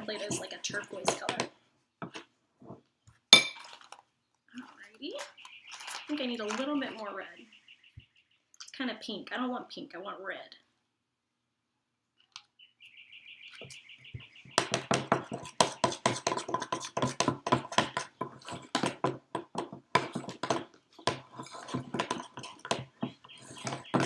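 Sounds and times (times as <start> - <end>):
spoon stirring dough in a bowl: 0.0 - 2.8, 13.5 - 24.0.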